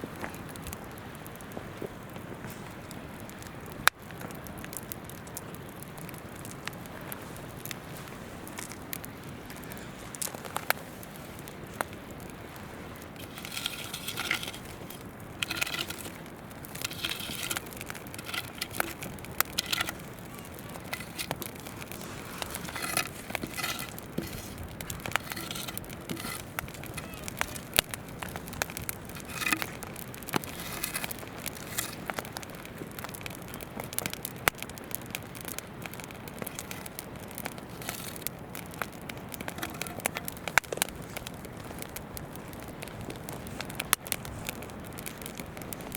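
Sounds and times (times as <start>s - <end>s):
campfire crackling and popping: 0.0s - 45.9s
river flowing: 12.3s - 32.1s.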